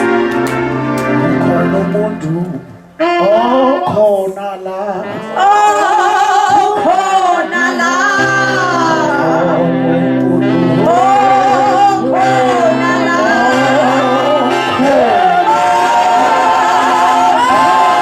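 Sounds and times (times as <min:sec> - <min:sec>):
held chord accompaniment: 0:00.0 - 0:03.9, 0:05.1 - 0:18.0
wavering gliding voices singing: 0:10.8 - 0:18.0.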